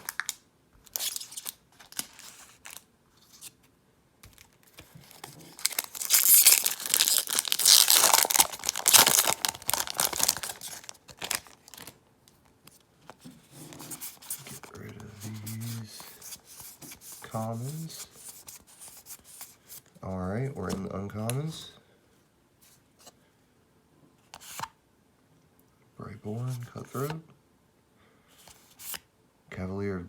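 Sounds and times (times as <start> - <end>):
foil wrapper tearing and crinkling: 0.0 - 2.8, 5.1 - 12.0.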